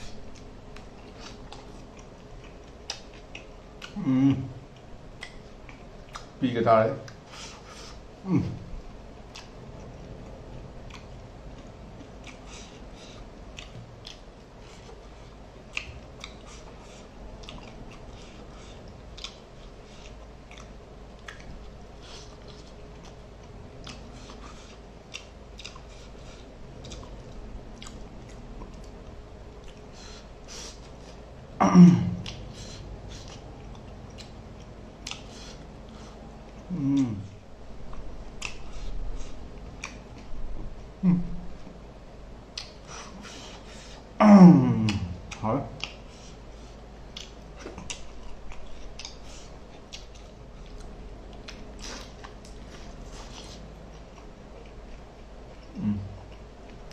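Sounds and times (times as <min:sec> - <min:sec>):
wet chewing and mouth clicks: 0:00.0 - 0:04.0, 0:04.7 - 0:06.4, 0:09.2 - 0:31.4, 0:32.2 - 0:37.2, 0:37.8 - 0:40.9, 0:42.5 - 0:44.1, 0:44.9 - 0:56.9
short vocal sounds: 0:03.9 - 0:04.6, 0:08.2 - 0:08.8, 0:31.6 - 0:32.4, 0:36.7 - 0:37.4, 0:41.0 - 0:41.7, 0:44.2 - 0:45.8, 0:55.7 - 0:56.3.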